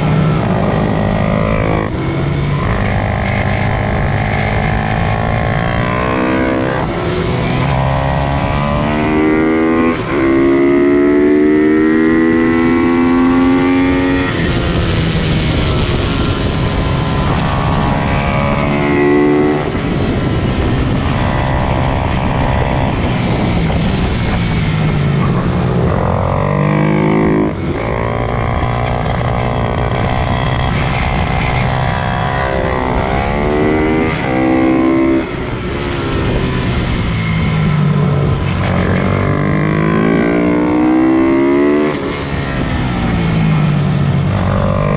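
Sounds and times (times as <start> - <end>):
motorbike engines revving high: 0.0 - 44.9.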